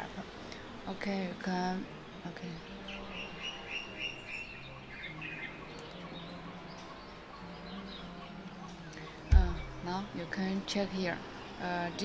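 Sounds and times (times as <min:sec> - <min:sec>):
small bird chirping: 0:02.7 - 0:10.4
steady low hum: 0:04.2 - 0:12.0.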